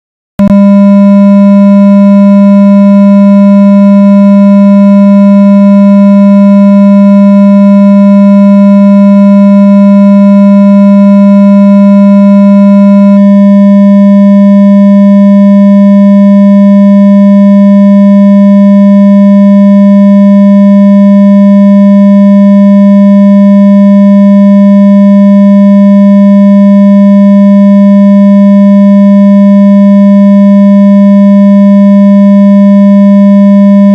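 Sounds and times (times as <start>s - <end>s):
low buzzy electronic hum tone: 0.4s - 18.8s, 33.1s - 33.9s.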